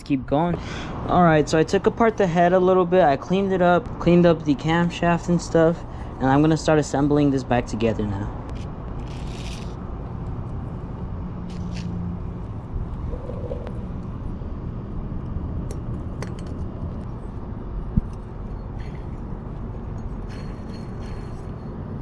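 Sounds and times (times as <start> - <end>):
low rumble: 12.2 - 22.0.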